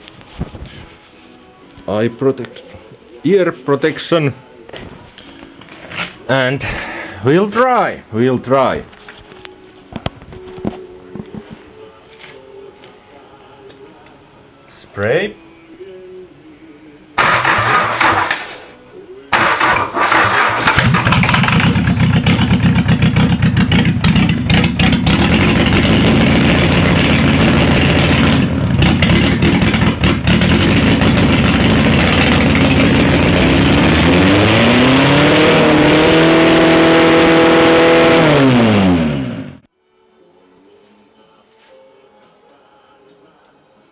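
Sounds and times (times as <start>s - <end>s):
man talking: 3.2s - 4.4s, 6.3s - 8.9s
diesel engine running and revving: 17.2s - 18.5s, 19.4s - 39.6s
starter motor cranking: 17.2s - 18.6s, 19.4s - 22.4s.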